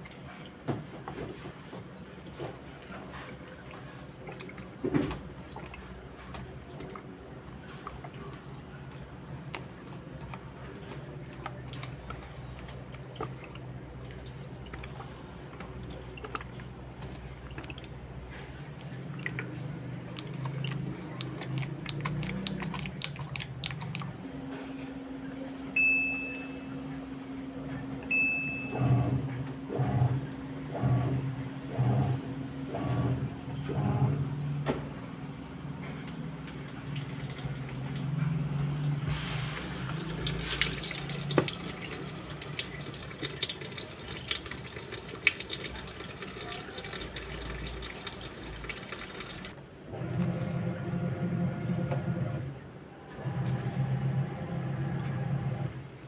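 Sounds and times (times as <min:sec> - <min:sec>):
washing machine humming: 0:00.0 - 0:56.0
water running in: 0:20.0 - 0:24.1, 0:36.4 - 0:49.6.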